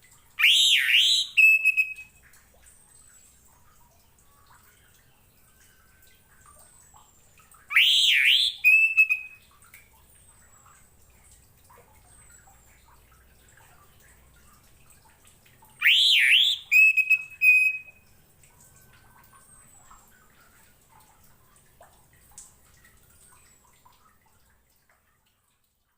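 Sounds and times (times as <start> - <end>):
thrush singing whistles: 0.4 - 2.1, 7.7 - 9.4, 15.8 - 18.0.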